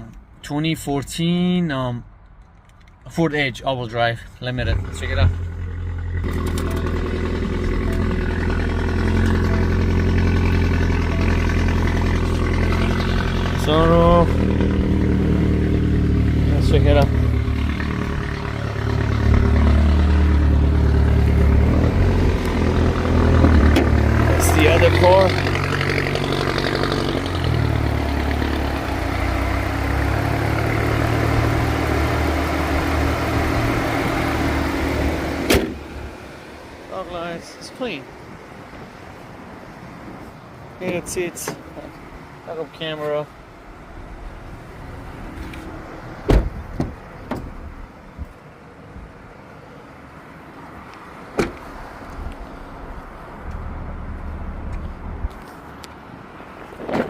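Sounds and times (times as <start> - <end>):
car engine idling: 4.5 - 37.3.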